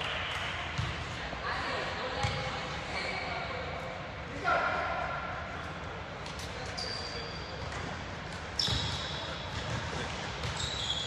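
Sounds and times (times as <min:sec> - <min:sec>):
basketball bouncing on gym floor: 0:00.8 - 0:01.0, 0:08.6 - 0:10.7.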